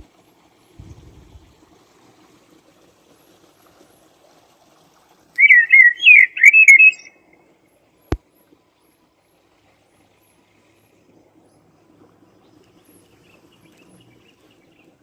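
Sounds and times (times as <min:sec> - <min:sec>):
songbird warbling: 0:05.4 - 0:07.2.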